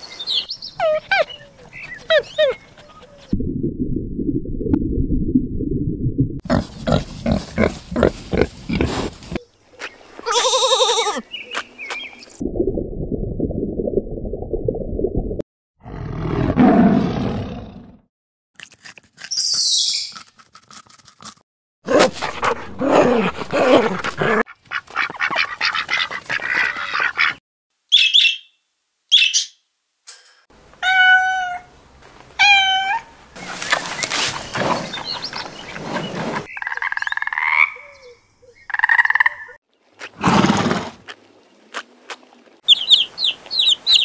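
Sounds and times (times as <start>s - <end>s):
animal calls: 0.8s - 3.3s.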